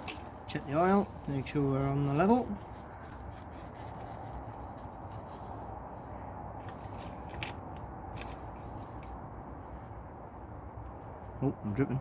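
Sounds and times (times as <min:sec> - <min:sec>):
dipstick clicks and rustles: 0:00.0 - 0:01.3, 0:06.6 - 0:09.2.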